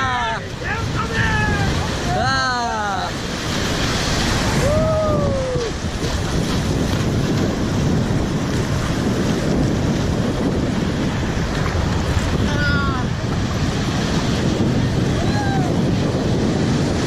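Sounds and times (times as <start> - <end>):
person shouting: 0.0 - 3.1, 4.6 - 5.8, 15.2 - 15.8
surf breaking on a beach: 0.0 - 17.0
wind buffeting microphone: 0.0 - 17.0.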